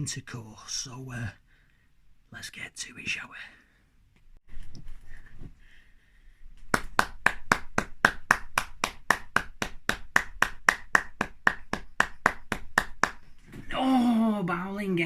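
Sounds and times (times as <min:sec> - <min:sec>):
sharp hand slaps: 0:06.6 - 0:13.2.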